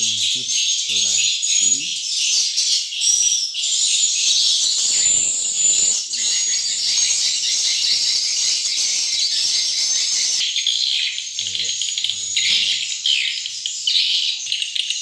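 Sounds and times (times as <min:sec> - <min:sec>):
swiftlets twittering: 0:11.3 - 0:13.0.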